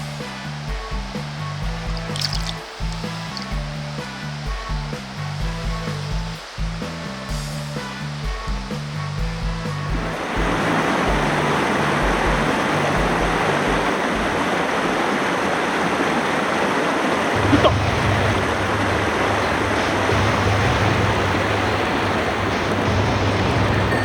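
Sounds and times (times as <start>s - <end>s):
stream rushing over rocks: 1.9s - 7.0s, 10.0s - 20.3s.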